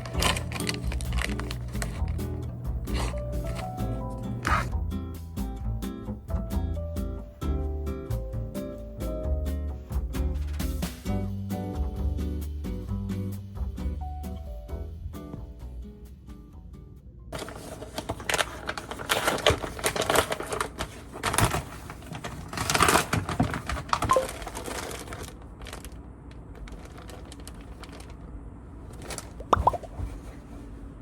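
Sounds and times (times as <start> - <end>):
rustling: 0.0 - 4.7, 17.4 - 31.0.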